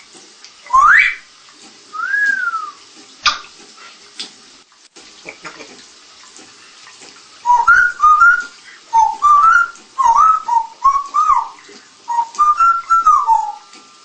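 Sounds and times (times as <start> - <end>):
parrot whistling a tune: 0.7 - 1.3, 1.9 - 2.8, 7.4 - 13.7.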